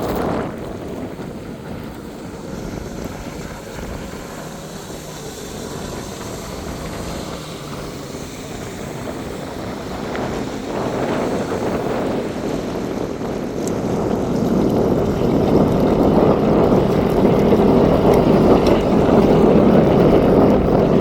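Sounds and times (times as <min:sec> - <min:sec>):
jet ski engine running: 0:00.0 - 0:21.0.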